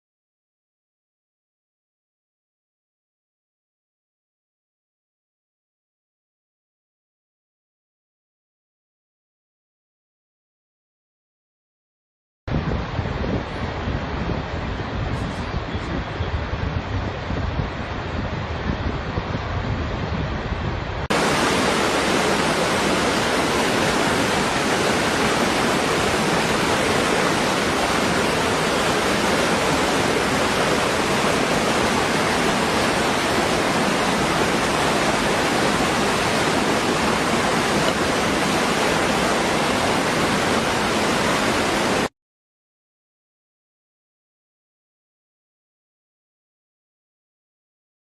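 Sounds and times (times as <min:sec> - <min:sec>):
waterfall rushing: 0:21.1 - 0:42.1.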